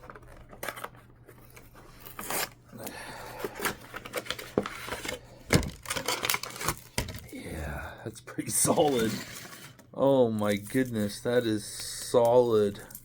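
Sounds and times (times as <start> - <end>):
plastic wrapper crinkling: 0.0 - 2.6, 3.2 - 7.2.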